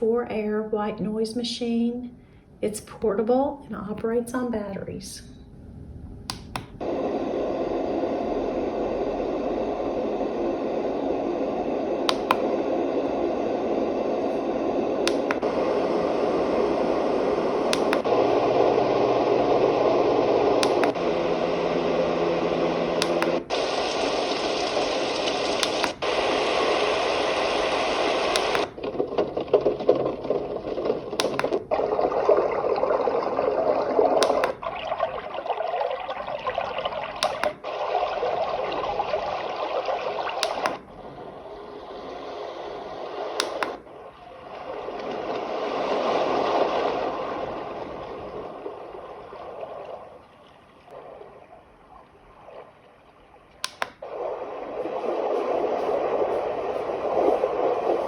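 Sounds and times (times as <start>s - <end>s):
switch click: 6.3s - 6.8s, 12.1s - 12.4s, 15.0s - 15.4s, 17.7s - 18.1s, 20.6s - 21.0s, 23.0s - 23.4s, 25.6s - 26.0s, 28.3s - 28.7s, 31.2s - 31.6s, 34.2s - 34.6s, 37.2s - 37.6s, 43.4s - 43.8s, 53.6s - 54.0s.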